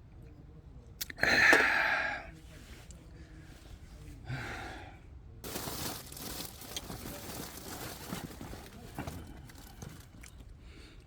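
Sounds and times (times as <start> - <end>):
person sighing: 1.2 - 2.2.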